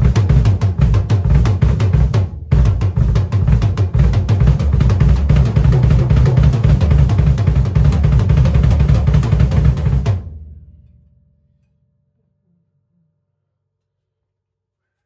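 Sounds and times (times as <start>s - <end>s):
drum kit played fast: 0.0s - 10.4s.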